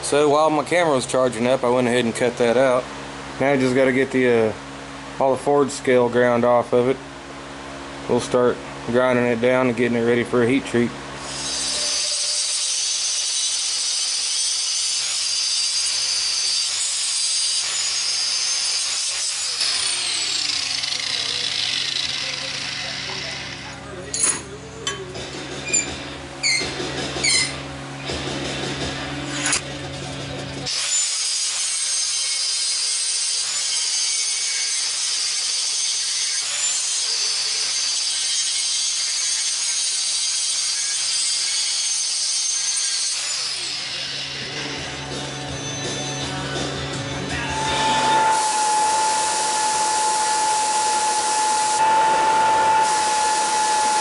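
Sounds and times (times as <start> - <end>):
belt grinder grinding metal: 11.2 - 24.4, 30.7 - 46.2, 46.9 - 54.0.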